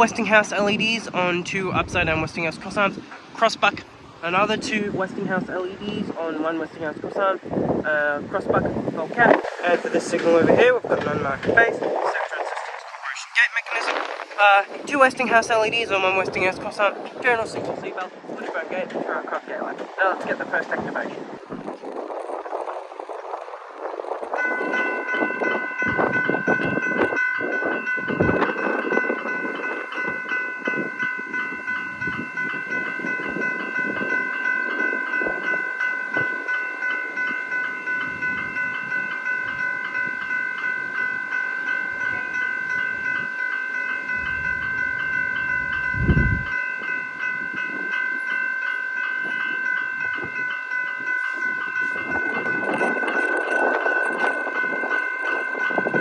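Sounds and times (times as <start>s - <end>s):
level crossing warning bell: 0.0s - 56.0s
train rumbling over rails: 0.0s - 56.0s.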